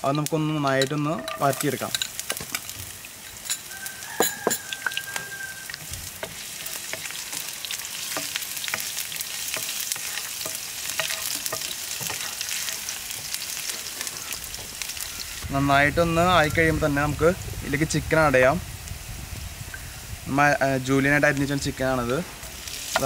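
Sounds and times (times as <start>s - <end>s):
food sizzling in hot oil: 0.0s - 23.0s
wooden spatula stirring: 4.2s - 14.7s.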